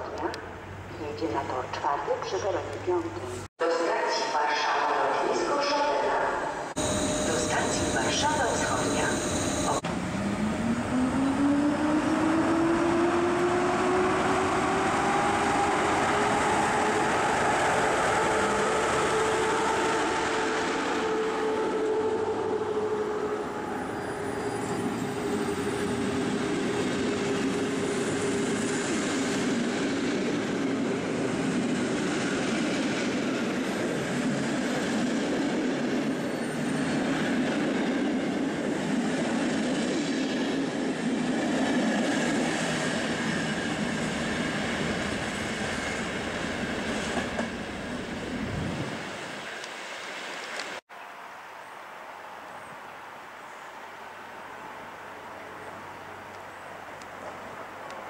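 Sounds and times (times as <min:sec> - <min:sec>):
train rumbling past: 0:00.0 - 0:50.8
train whine: 0:04.4 - 0:50.8.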